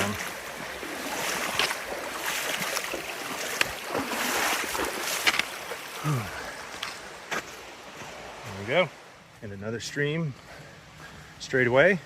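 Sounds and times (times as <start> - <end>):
water sloshing around wading legs: 0.0 - 8.8
stream rushing: 0.0 - 12.0.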